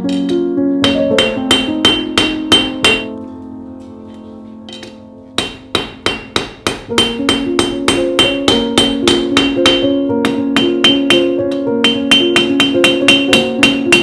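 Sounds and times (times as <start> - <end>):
music: 0.0 - 14.0
hammer ringing on anvil: 0.1 - 3.1, 4.7 - 14.0.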